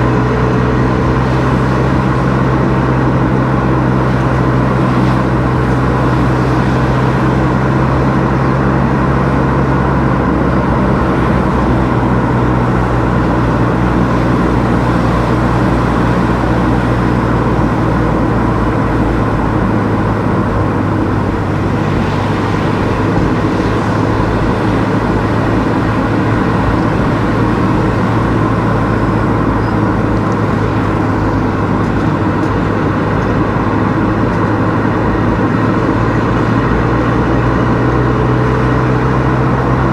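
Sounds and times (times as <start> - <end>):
car engine hum: 0.0 - 39.9
tyre and road noise: 0.0 - 39.9.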